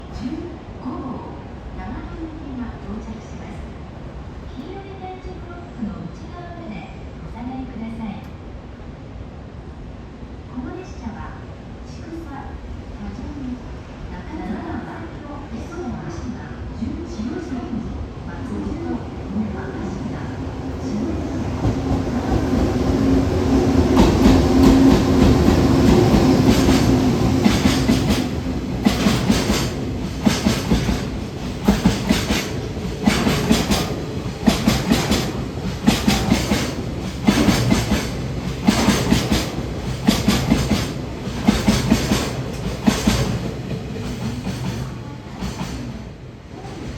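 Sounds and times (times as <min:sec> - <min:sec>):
electric locomotive hum: 0:07.8 - 0:46.9
train wheels clattering over rail joints: 0:21.6 - 0:46.0.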